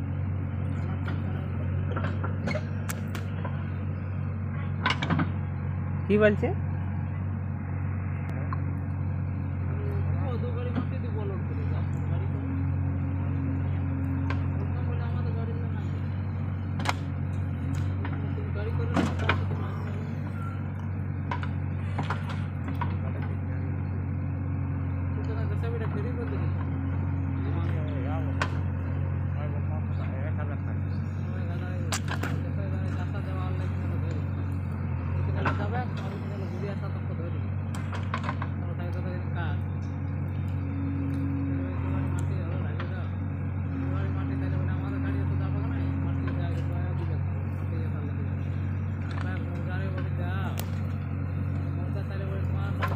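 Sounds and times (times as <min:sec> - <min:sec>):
diesel engine humming: 0:00.0 - 0:52.9
sharp clicks and knocks: 0:04.5 - 0:05.4, 0:16.7 - 0:18.2, 0:21.2 - 0:23.3, 0:37.7 - 0:38.6.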